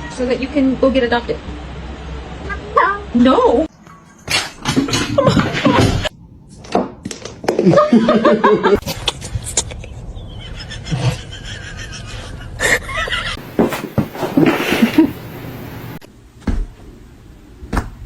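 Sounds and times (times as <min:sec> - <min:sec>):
person laughing: 0:07.5 - 0:13.4, 0:14.2 - 0:15.2.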